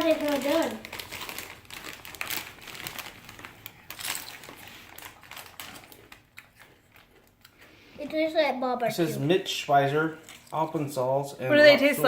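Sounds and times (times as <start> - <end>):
plastic chip bag crinkling: 0.0 - 7.4, 10.2 - 10.6.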